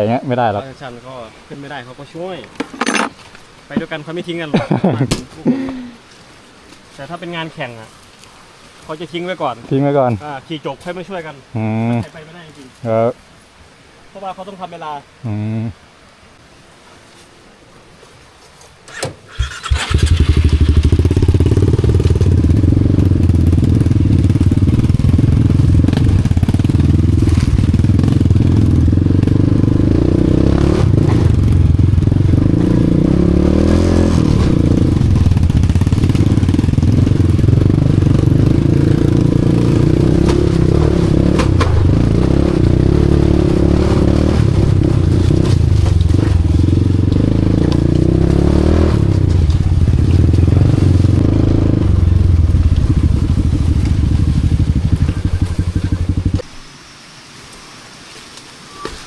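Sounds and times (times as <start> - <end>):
motorcycle engine running: 19.6 - 56.4.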